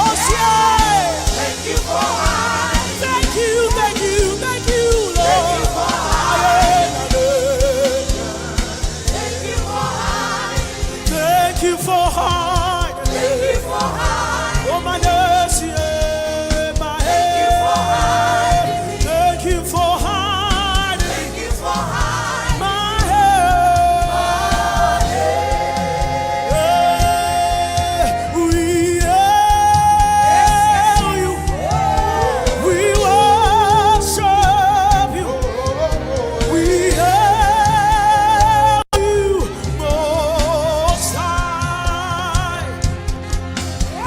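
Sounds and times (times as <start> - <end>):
gospel band with bass: 0.0 - 44.0
singers holding vibrato notes: 17.0 - 19.7.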